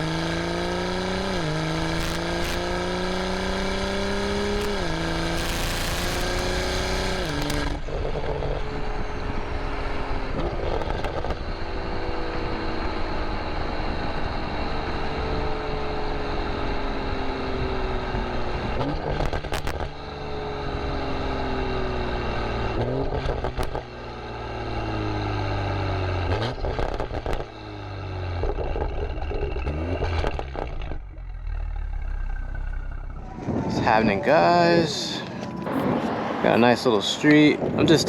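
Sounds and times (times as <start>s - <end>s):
vehicle motor: 0.0s - 36.8s
sharp clicks: 5.4s - 8.2s
low rumble: 28.3s - 38.0s.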